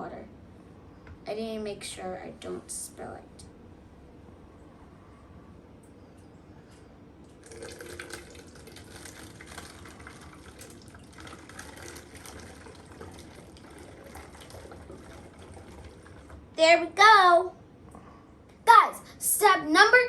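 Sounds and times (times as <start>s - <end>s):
water pouring into plastic bottle: 7.3s - 16.4s.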